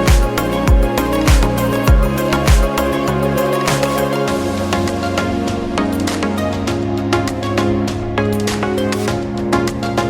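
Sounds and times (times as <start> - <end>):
kick drum beat: 0.1 - 2.8.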